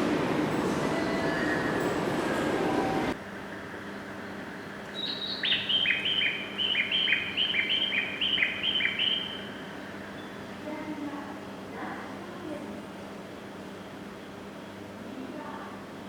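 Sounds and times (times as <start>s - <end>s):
high bird-like chirps: 5.0s - 9.5s.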